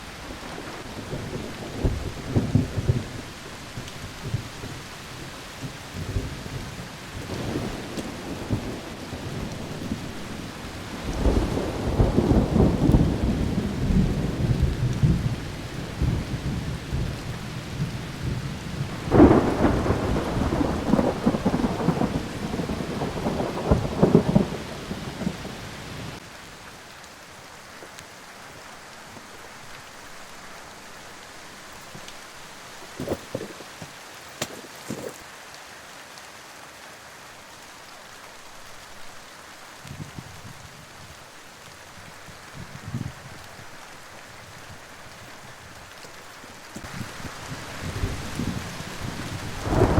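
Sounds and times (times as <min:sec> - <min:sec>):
storm hiss: 0:00.0 - 0:35.4, 0:38.2 - 0:49.9
thunder rumbling: 0:00.1 - 0:26.2, 0:46.8 - 0:49.9.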